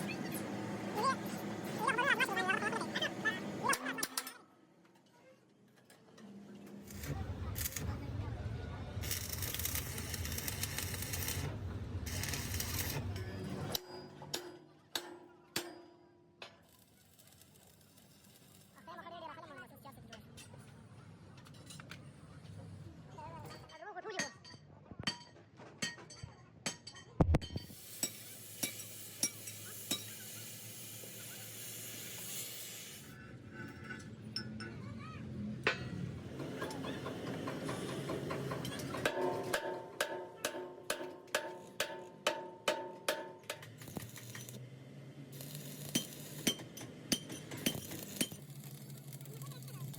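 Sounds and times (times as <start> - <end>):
workshop machinery humming: 0.0 - 3.9, 6.1 - 14.3
arc welding sizzling crackle: 6.8 - 8.0, 9.0 - 13.3, 16.6 - 19.4, 27.6 - 33.2, 43.1 - 44.6, 45.3 - 49.9
sharp metal knocks: 37.4 - 44.2
metal strikes ringing: 39.0 - 43.7.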